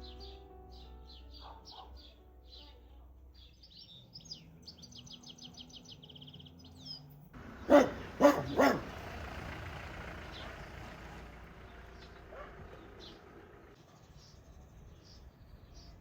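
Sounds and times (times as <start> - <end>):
dog barking: 1.4 - 2.1, 7.6 - 9.2, 12.3 - 13.1
songbird trilling: 3.4 - 8.9.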